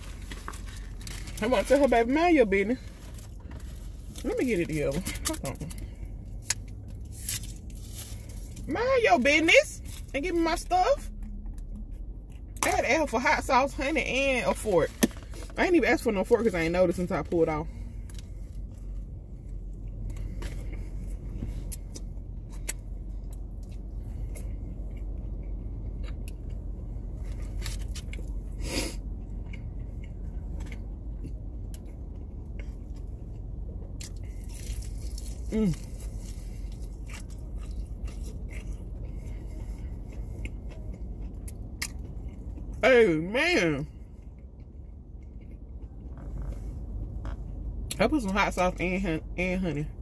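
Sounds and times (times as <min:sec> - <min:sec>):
biting and chewing crunchy food: 0:00.0 - 0:08.9, 0:11.1 - 0:42.8, 0:43.6 - 0:48.8.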